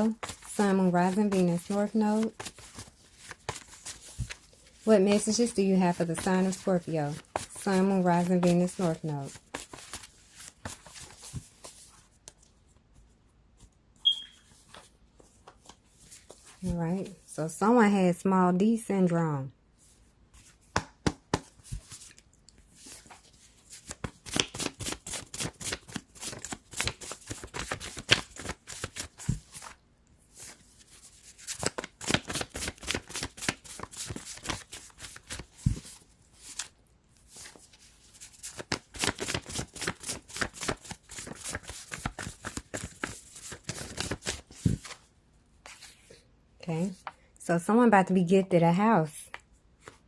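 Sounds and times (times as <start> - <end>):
cards being shuffled: 0.2 - 12.5, 20.4 - 29.8, 30.4 - 36.7, 37.3 - 45.0.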